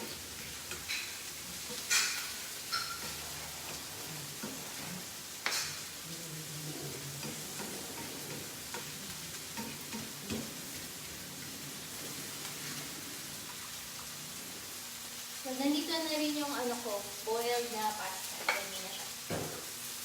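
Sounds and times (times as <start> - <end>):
utensil striking a pan: 0.0 - 3.8, 4.4 - 6.0, 7.2 - 10.8
garlic sizzling in oil: 0.0 - 20.0.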